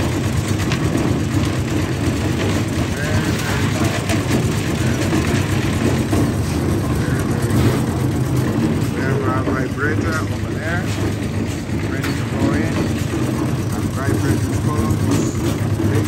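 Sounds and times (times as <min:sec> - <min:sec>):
low machine hum: 0:00.0 - 0:16.0
people talking: 0:02.8 - 0:08.0, 0:08.6 - 0:16.0.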